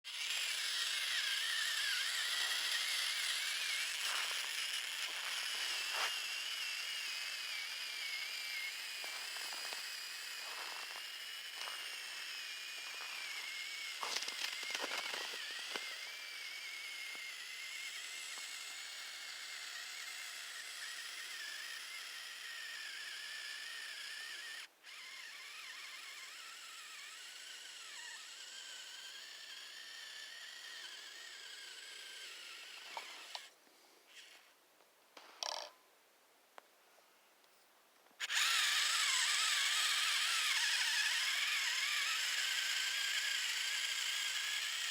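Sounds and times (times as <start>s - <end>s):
toy truck motor whining: 0.0s - 34.5s, 38.2s - 44.9s
crackles and scrapes: 2.4s - 6.7s, 8.6s - 16.0s.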